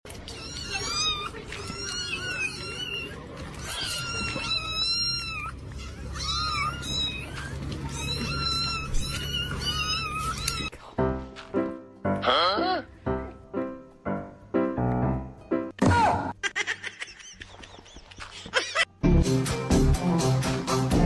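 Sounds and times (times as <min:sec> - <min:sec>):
cat meowing: 0:00.1 - 0:10.7.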